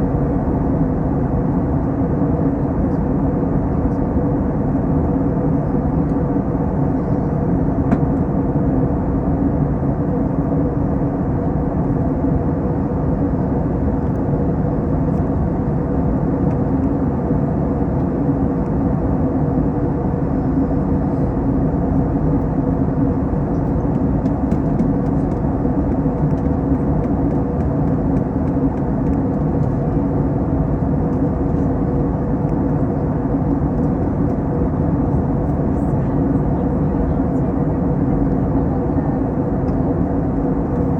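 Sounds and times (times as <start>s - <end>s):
airplane cabin engine drone: 0.0s - 40.9s
held hum tones: 13.4s - 40.9s.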